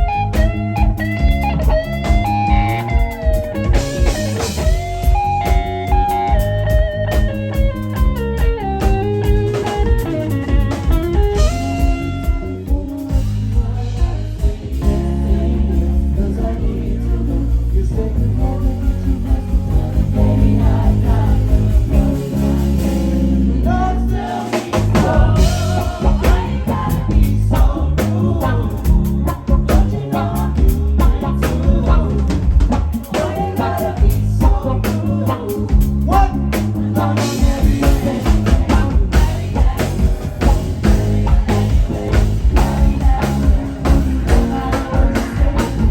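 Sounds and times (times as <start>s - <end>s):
electric guitar notes: 0.0s - 32.9s
live band playing: 0.0s - 45.9s.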